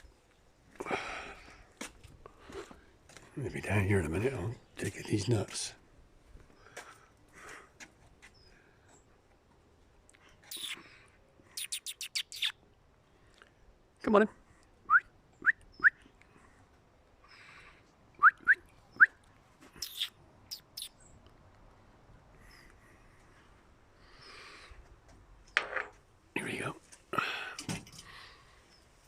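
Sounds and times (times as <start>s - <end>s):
faint bird chirps: 10.5s - 12.6s, 19.8s - 21.2s
person whistling rising calls: 18.2s - 19.2s.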